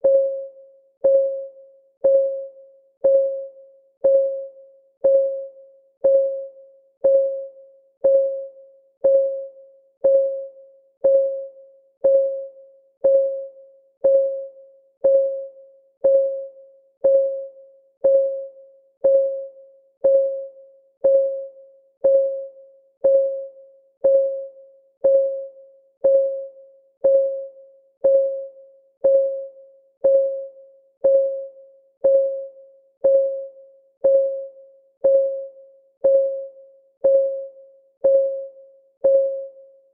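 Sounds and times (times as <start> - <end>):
countdown timer ticking: 3.0 - 39.6.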